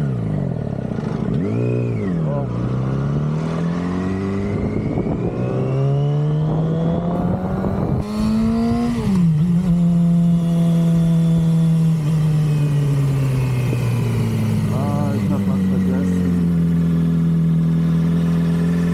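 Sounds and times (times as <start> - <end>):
motorcycle engine accelerating: 0.0 - 18.9
wind rushing over microphone: 3.6 - 12.0.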